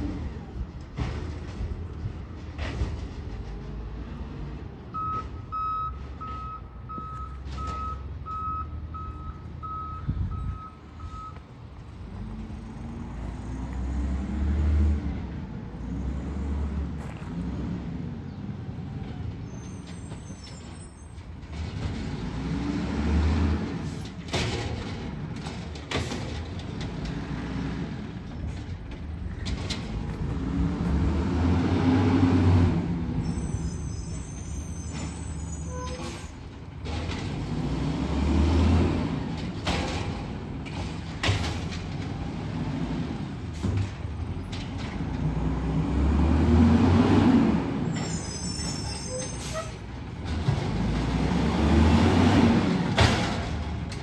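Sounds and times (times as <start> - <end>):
diesel engine revving: 0.0 - 35.6, 36.4 - 54.0
backup alarm beeping: 5.0 - 11.4.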